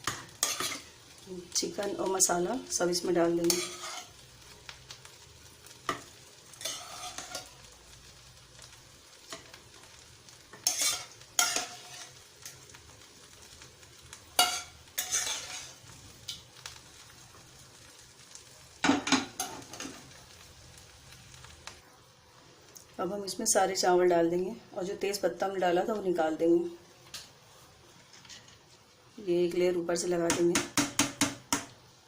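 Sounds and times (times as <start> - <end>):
low sizzle from pot: 0.0 - 32.0
spoon scraping and knocking pot: 30.3 - 31.7.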